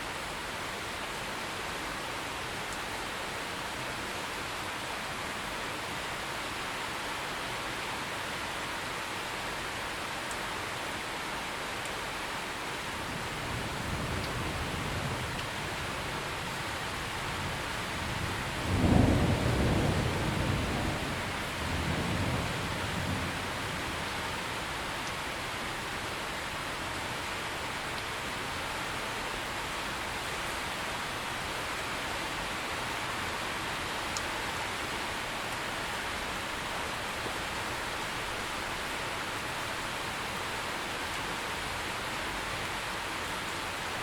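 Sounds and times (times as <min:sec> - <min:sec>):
heavy rain: 0:00.0 - 0:44.0
thunder rumble: 0:17.2 - 0:24.4.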